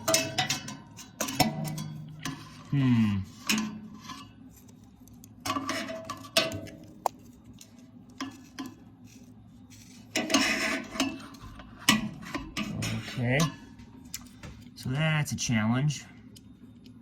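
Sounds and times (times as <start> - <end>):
metal scraping rattle: 9.8 - 13.7.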